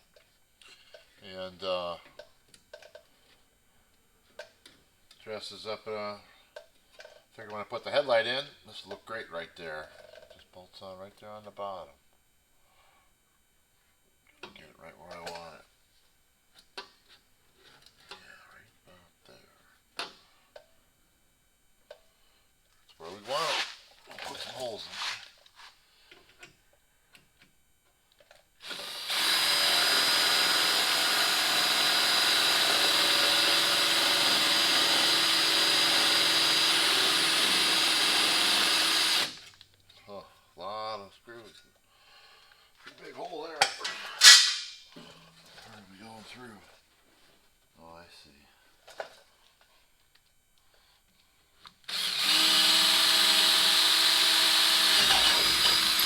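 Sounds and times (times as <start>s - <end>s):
power drill boring: 28.6s - 39.4s, 51.9s - 56.0s.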